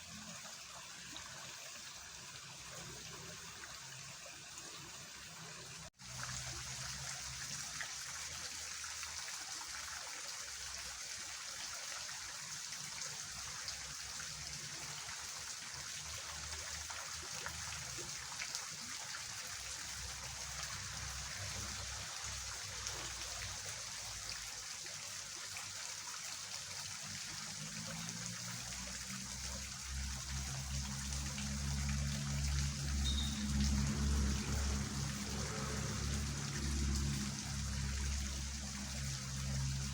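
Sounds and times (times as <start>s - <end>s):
water rushing through a ditch: 0.0s - 39.9s.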